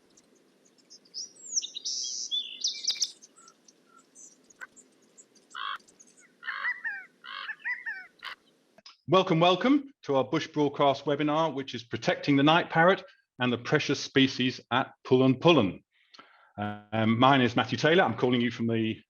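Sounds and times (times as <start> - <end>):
birds harsh repeated calls: 0.0 - 8.7
faint low background noise: 0.0 - 15.8, 16.6 - 19.0
birds chirping and whistling: 0.8 - 8.5.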